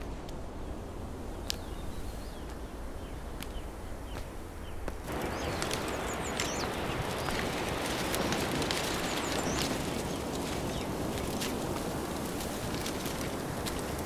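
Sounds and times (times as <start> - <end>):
birds chirping: 0.6 - 11.7.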